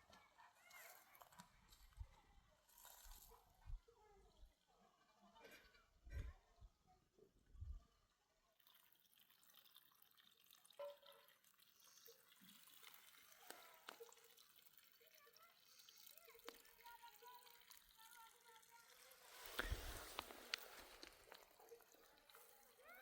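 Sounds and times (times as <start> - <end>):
water trickling and dripping: 8.1 - 23.0.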